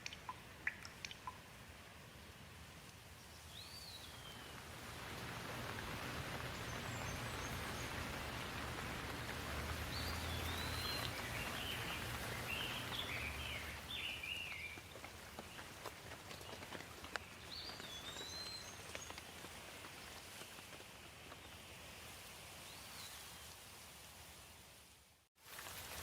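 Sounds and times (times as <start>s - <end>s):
rain hiss: 0.0s - 26.0s
bird chirping calls: 6.3s - 15.8s, 16.4s - 19.3s.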